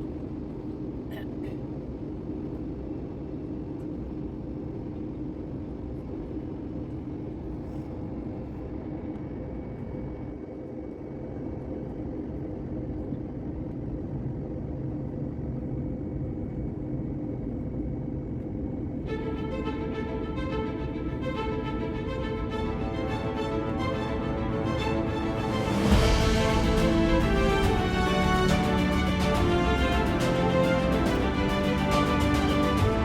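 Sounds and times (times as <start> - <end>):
jet engines and airflow rumble: 0.0 - 33.0
low hum: 0.0 - 33.0
background music: 19.1 - 33.0.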